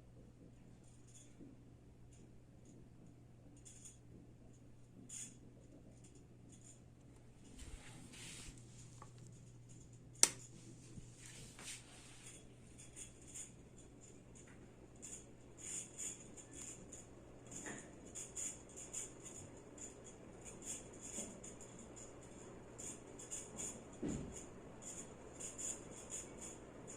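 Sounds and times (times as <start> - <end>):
ceiling fan motor hum: 0.0 - 26.9
sharp click: 10.2 - 10.4.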